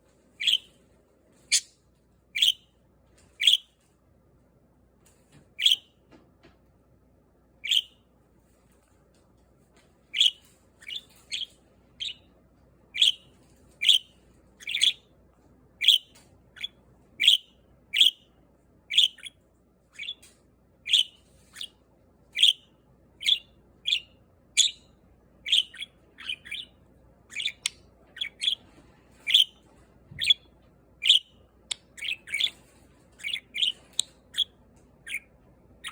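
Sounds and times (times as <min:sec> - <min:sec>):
budgerigar chirping: 0:00.4 - 0:00.7, 0:02.4 - 0:02.6, 0:03.4 - 0:03.7, 0:05.6 - 0:05.8, 0:07.6 - 0:08.0, 0:10.1 - 0:12.3, 0:12.9 - 0:15.1, 0:15.8 - 0:18.3, 0:18.9 - 0:19.4, 0:20.0 - 0:21.8, 0:22.4 - 0:28.6, 0:29.3 - 0:29.6, 0:30.2 - 0:32.6, 0:33.2 - 0:35.9.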